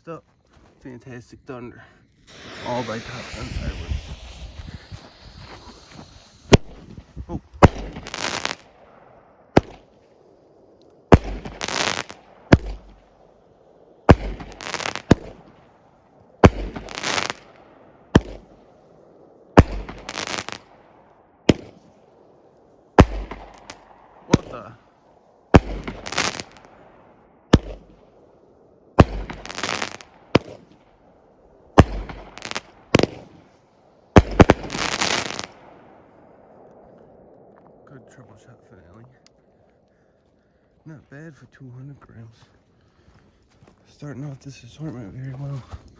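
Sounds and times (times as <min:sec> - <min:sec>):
firework launch thumps: 0:02.2 - 0:08.7, 0:11.1 - 0:13.0, 0:14.1 - 0:15.6, 0:16.4 - 0:17.5, 0:18.2 - 0:18.5, 0:21.5 - 0:21.8, 0:23.0 - 0:24.6, 0:25.6 - 0:26.7, 0:27.5 - 0:28.0, 0:29.0 - 0:30.8, 0:31.8 - 0:33.4, 0:34.2 - 0:35.6.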